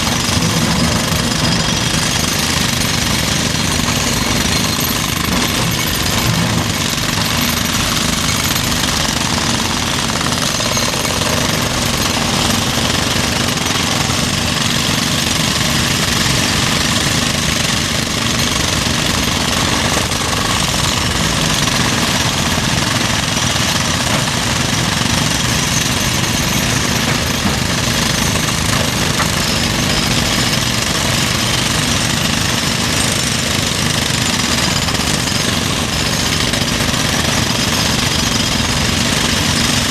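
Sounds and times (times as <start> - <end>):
demolition breaker hammering: 0.0 - 39.9.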